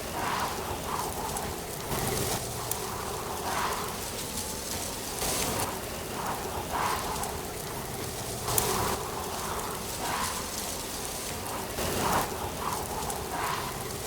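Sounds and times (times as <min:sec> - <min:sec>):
wind rustling leaves: 0:00.0 - 0:14.0.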